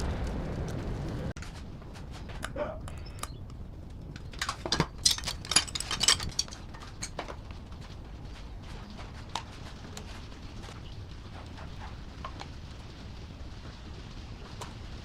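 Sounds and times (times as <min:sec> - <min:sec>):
metal tools clinking: 0:04.0 - 0:07.5.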